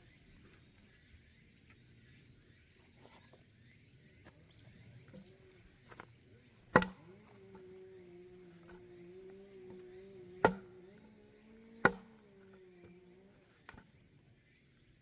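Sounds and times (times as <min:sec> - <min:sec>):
firewood chop: 0:06.6 - 0:07.7, 0:09.7 - 0:11.1, 0:11.7 - 0:13.0.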